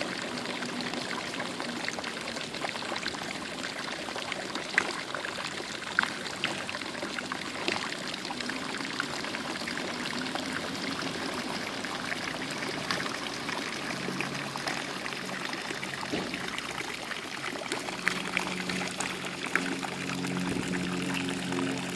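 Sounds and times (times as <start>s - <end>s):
water trickling and splashing: 0.0s - 21.9s
soft sustained music tones: 18.0s - 21.9s.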